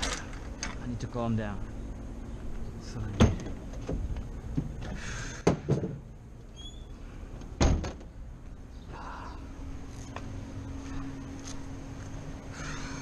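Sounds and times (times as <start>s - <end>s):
sharp knocks and clunks: 3.1s - 6.1s, 7.4s - 8.1s.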